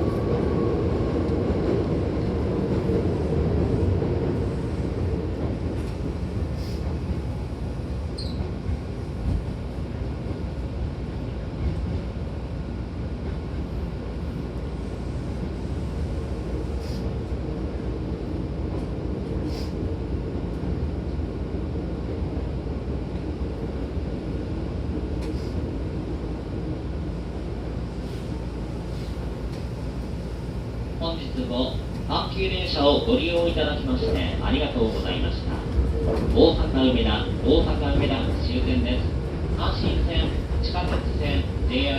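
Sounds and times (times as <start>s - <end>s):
train interior rumble: 0.0s - 41.9s.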